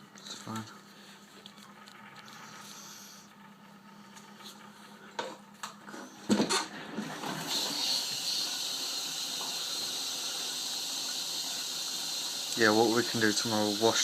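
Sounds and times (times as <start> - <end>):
water running into washing machine: 5.7 - 14.0.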